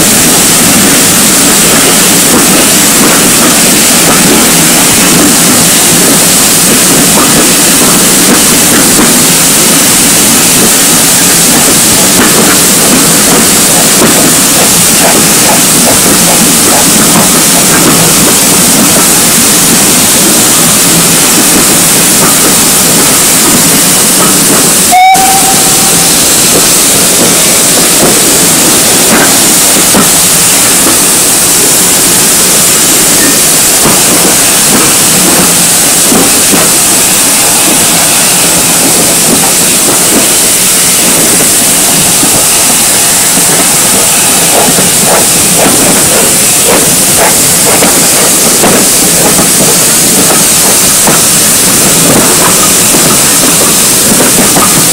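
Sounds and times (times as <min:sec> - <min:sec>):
hiss of escaping steam: 0:00.0 - 0:54.9
steam whistle toot: 0:24.8 - 0:26.8.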